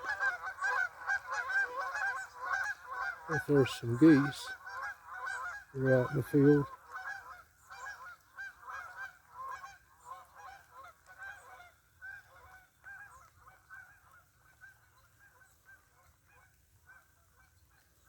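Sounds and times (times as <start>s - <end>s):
geese honking: 0.0s - 17.6s.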